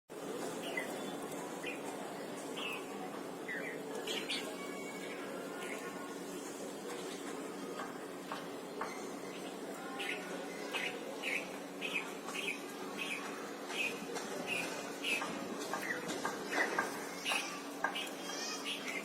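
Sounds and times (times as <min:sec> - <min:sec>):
birds chirping: 0:00.1 - 0:19.0
nestlings chirping: 0:09.4 - 0:16.0.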